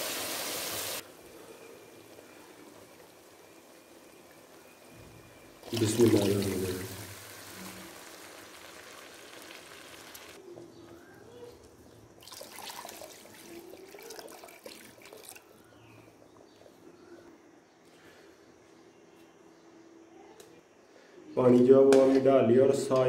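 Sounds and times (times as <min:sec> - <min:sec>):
water pouring into a pan: 0:05.6 - 0:10.4, 0:12.2 - 0:15.5.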